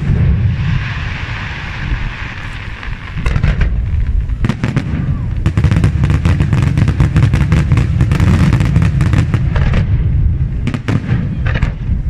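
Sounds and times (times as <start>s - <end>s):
fireworks bursting in bangs: 0.0s - 12.0s
low rumble: 8.7s - 12.0s.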